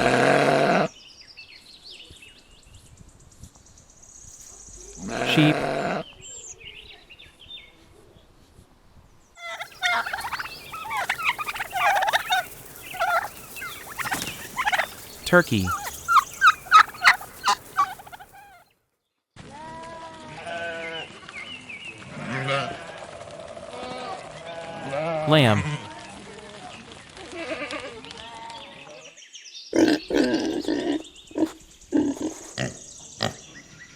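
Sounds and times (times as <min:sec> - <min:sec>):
wavering bleat: 0:05.0 - 0:06.0
turkeys gobbling and calling: 0:09.4 - 0:18.7.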